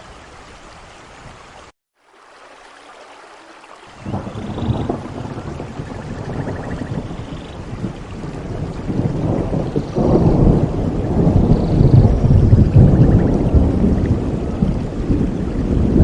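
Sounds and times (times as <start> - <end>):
steady rain: 0.0 - 16.0
thunder rumbling: 4.0 - 16.0.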